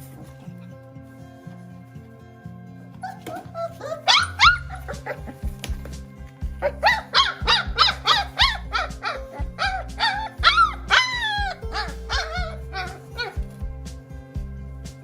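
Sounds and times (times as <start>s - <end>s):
low background music: 0.0s - 15.0s
puppy yelping and whining: 3.0s - 5.4s, 6.6s - 13.4s.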